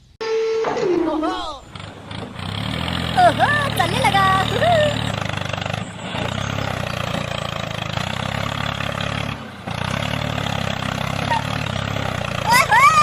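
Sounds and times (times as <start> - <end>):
tractor engine chugging: 1.5 - 13.0.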